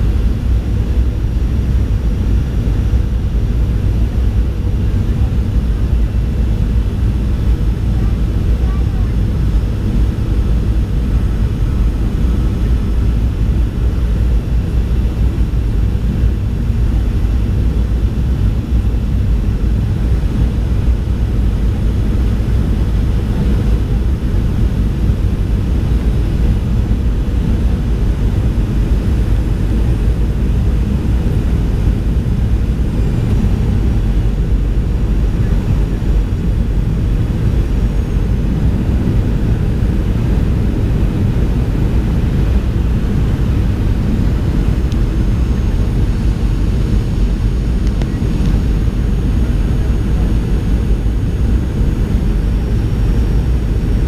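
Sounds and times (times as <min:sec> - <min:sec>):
airliner cabin rumble: 0:00.0 - 0:54.0.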